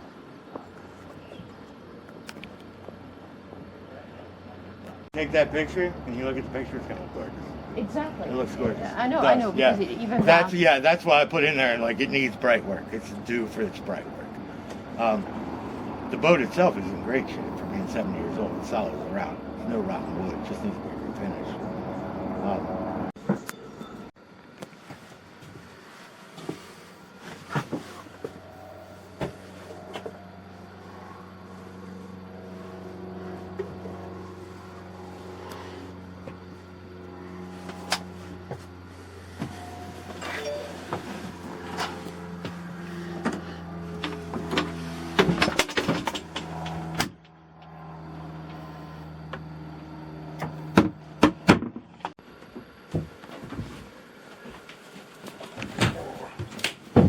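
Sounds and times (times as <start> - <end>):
low mechanical hum: 0.0 - 57.0
sharp knocks and clunks: 50.4 - 53.7.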